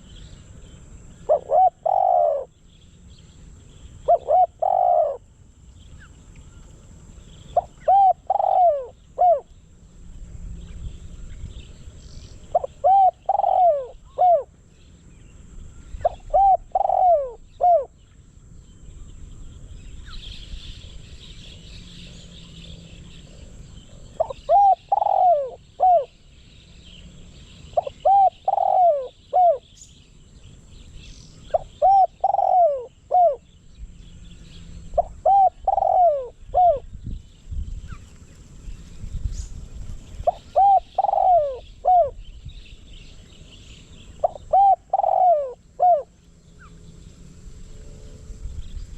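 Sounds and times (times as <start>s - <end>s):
dove cooing: 1.2s - 2.6s, 4.0s - 5.3s, 7.5s - 9.5s, 12.5s - 14.5s, 16.0s - 17.9s, 22.2s - 26.2s, 27.7s - 29.7s, 31.5s - 33.5s, 35.0s - 36.9s, 40.2s - 42.2s, 44.1s - 46.8s.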